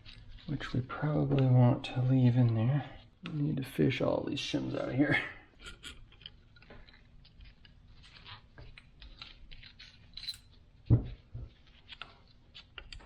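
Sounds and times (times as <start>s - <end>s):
metal shims clicking and scraping: 6.0s - 10.6s
dull knock: 10.9s - 11.1s.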